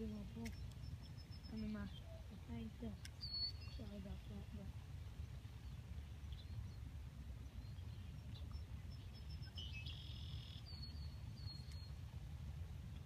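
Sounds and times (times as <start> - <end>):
faint high bird chirps: 3.0 - 4.4, 7.6 - 12.0.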